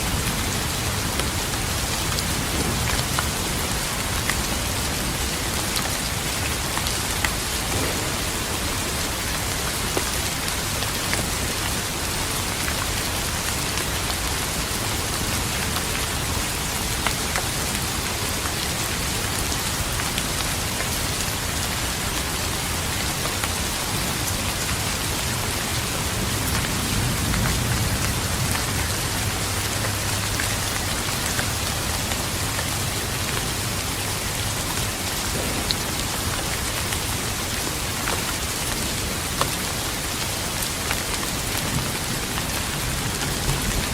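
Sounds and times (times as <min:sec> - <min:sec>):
heavy rain falling: 0:00.0 - 0:43.9
low thunder roll: 0:07.6 - 0:10.8, 0:35.3 - 0:37.2.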